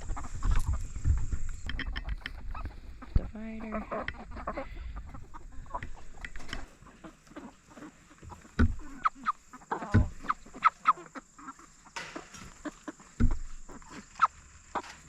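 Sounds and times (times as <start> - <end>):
chickens clucking: 0.0 - 15.0
dull thumps: 8.2 - 10.7, 12.0 - 14.1.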